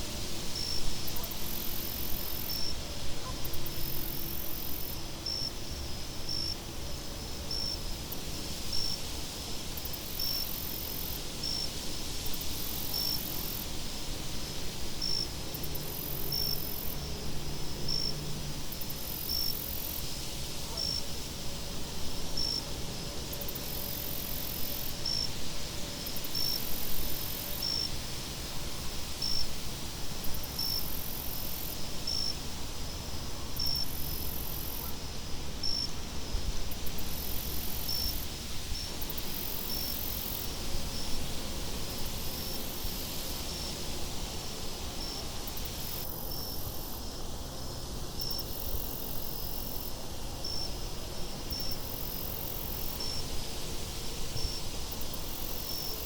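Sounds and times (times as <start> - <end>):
insects chirping: 30.3 - 41.2, 41.9 - 56.0.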